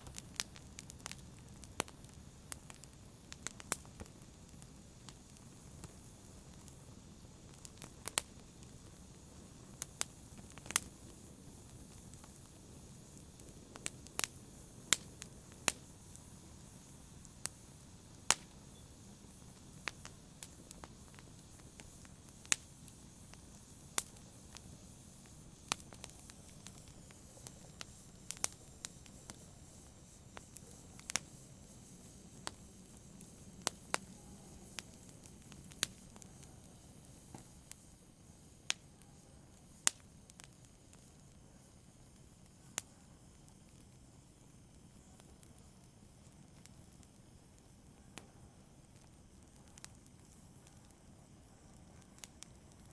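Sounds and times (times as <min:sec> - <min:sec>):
campfire crackling: 0:00.0 - 0:52.9.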